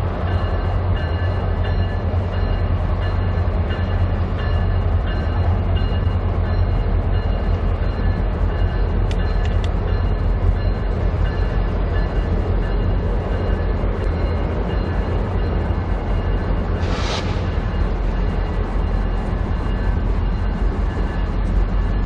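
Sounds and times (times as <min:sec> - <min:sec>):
train wheels rumbling on rails: 0:00.0 - 0:22.0
deep low drone: 0:16.8 - 0:19.2.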